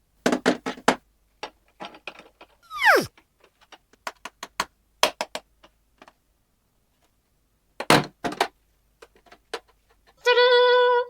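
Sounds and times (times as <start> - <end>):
whistle-like squeal falling in pitch: 2.7 - 3.1.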